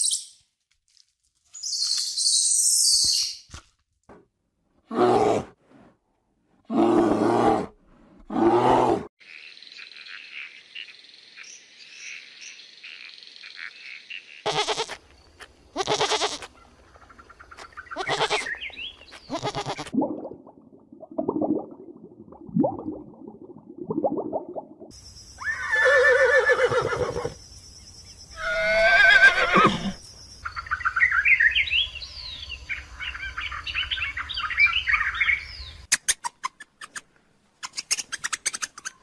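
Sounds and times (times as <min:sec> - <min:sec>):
loud animal calls: 0:28.4 - 0:30.0.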